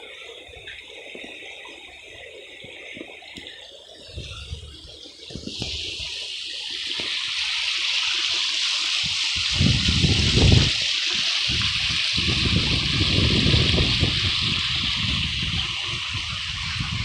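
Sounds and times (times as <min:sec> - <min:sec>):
low rumbling wind gusts: 0:09.1 - 0:17.0.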